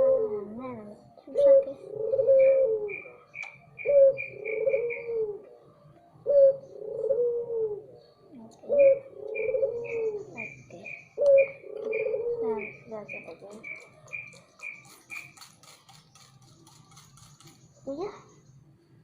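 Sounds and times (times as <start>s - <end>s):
dove cooing: 0.0s - 15.8s
small bird chirping: 0.4s - 7.1s, 7.8s - 19.0s.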